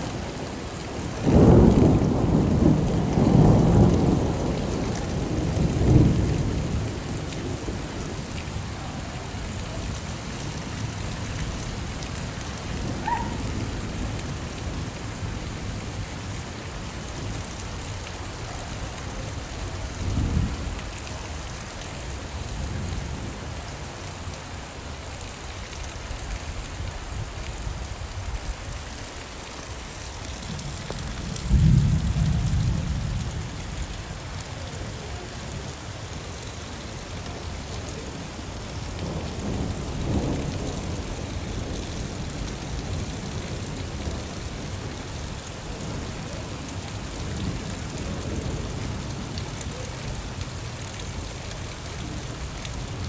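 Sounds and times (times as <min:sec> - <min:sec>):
steady rainfall: 0:00.0 - 0:53.0
rolling thunder: 0:01.2 - 0:08.2, 0:30.4 - 0:33.6, 0:39.0 - 0:44.8.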